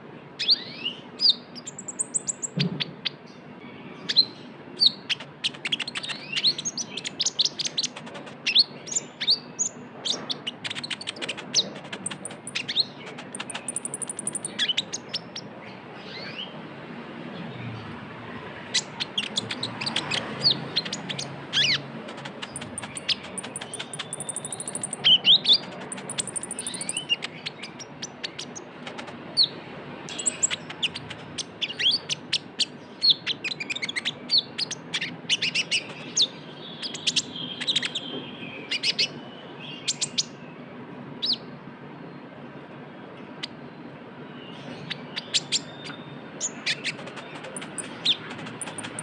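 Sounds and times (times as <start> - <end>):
sunbird singing sharp chirps: 8.5 - 16.5, 22.4 - 28.6.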